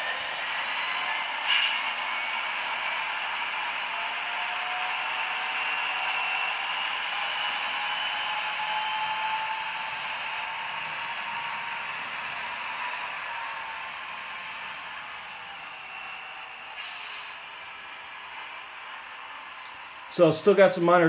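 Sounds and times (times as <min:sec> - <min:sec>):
model train diesel engine sound: 0:00.0 - 0:21.0.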